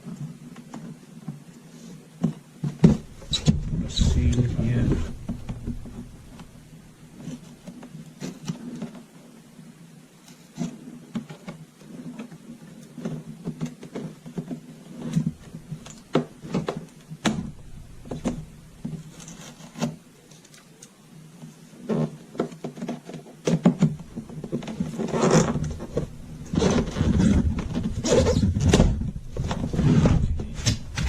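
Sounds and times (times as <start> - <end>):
steady low hum: 2.6 - 8.2, 15.0 - 20.3, 23.8 - 31.0.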